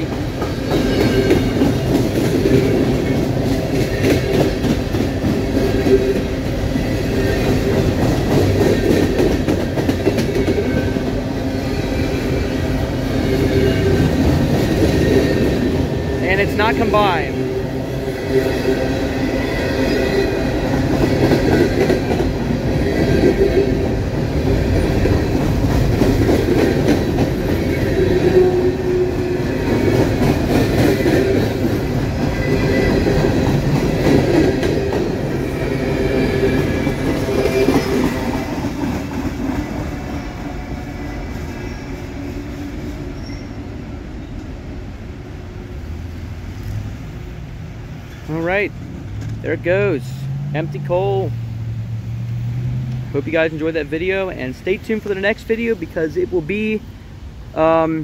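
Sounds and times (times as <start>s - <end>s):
wheels clacking over rail joints: 0.0s - 17.0s, 18.3s - 42.0s
wheel squeal: 43.2s - 43.7s.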